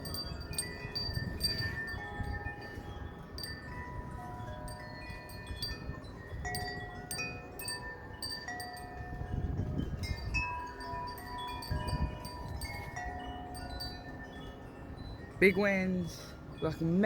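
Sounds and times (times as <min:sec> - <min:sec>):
wind chimes ringing: 0:00.0 - 0:17.0
wind gusts on microphone: 0:00.0 - 0:17.0.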